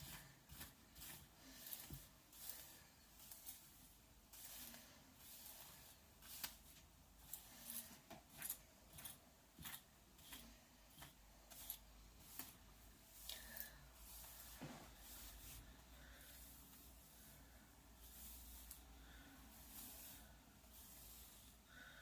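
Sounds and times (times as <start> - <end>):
hairbrush swishing through wet hair: 0.0 - 10.4, 11.0 - 17.4, 18.0 - 18.9, 19.5 - 21.6.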